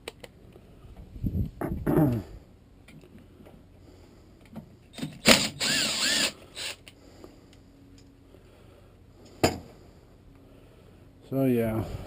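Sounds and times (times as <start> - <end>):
impact wrench motor whine: 5.0 - 6.8.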